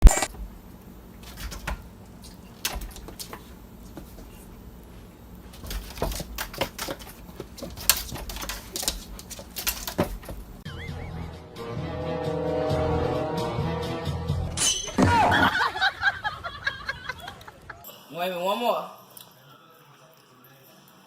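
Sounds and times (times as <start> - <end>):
high wavering squeak: 10.7 - 11.4.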